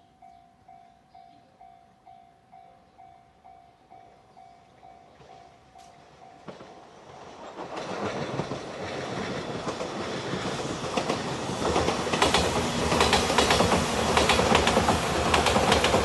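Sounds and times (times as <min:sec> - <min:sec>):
electric train passing: 0:00.0 - 0:16.0
wheels clacking over rail joints: 0:05.8 - 0:16.0.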